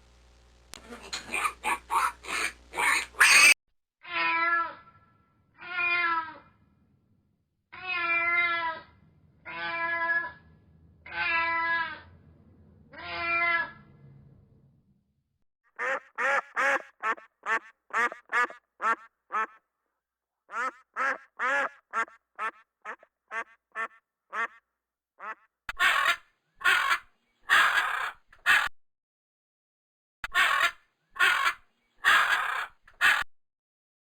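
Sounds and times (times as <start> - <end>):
short animal calls: 0.8 - 3.6, 15.8 - 19.6, 20.5 - 24.6, 25.2 - 28.7, 30.2 - 33.2.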